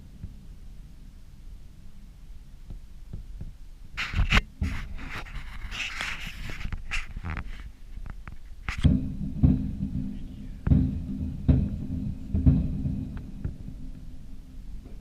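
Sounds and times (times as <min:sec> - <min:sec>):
fireworks rumble: 0:00.0 - 0:15.0
fireworks burst with deep thump: 0:08.6 - 0:15.0.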